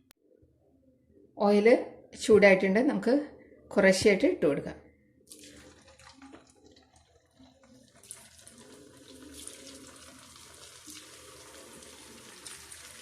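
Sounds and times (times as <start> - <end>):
frying oil sizzling: 8.0 - 13.0.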